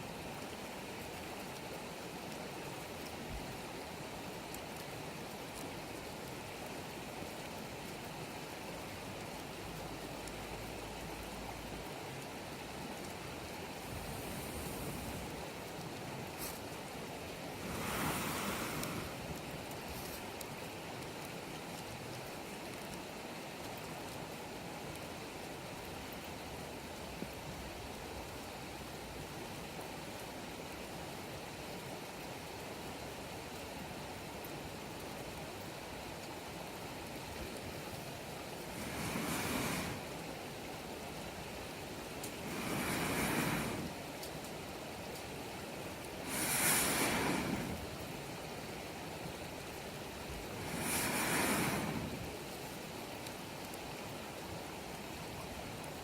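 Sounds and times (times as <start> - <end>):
campfire burning: 0.0 - 56.0
fire crackles: 0.0 - 56.0
wood fire hissing: 0.3 - 21.6, 36.1 - 55.6.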